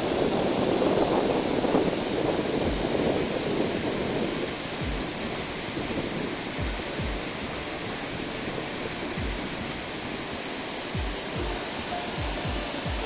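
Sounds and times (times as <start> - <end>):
waterfall roaring: 0.0 - 13.0
background music with bass kicks: 2.6 - 2.9, 4.8 - 5.1, 6.6 - 7.3, 9.2 - 9.6, 11.0 - 13.0.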